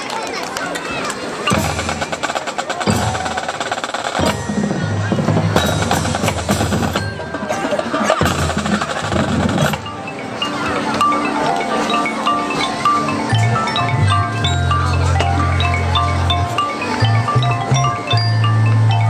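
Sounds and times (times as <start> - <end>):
marching band low brass chords: 1.5 - 9.9
rapid drum strokes: 1.5 - 10.1.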